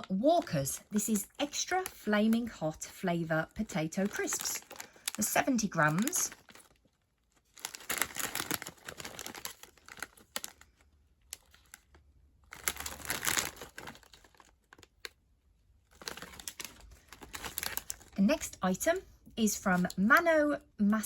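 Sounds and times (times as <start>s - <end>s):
crisp packet crinkling: 0.0s - 18.6s.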